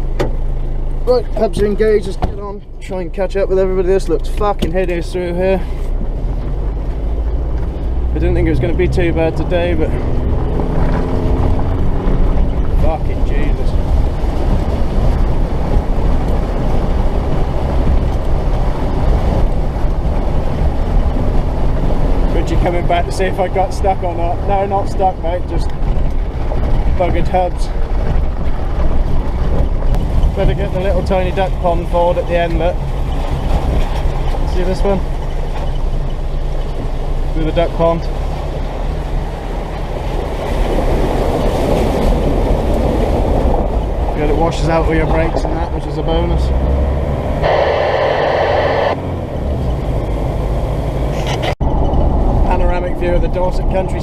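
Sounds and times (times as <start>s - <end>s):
truck engine rumble: 0.0s - 54.0s
water sloshing and splashing: 32.8s - 44.2s
diesel engine running under load: 43.2s - 52.5s.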